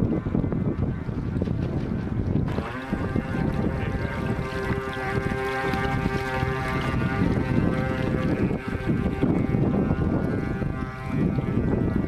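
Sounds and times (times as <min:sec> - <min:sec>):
wind rumbling on microphone: 0:00.0 - 0:12.0
model boat electric motor whine: 0:02.4 - 0:12.0.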